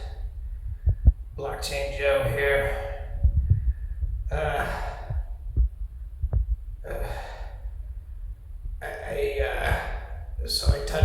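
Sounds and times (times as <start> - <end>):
man gasping: 2.7 - 5.4, 6.8 - 7.9, 9.6 - 10.4.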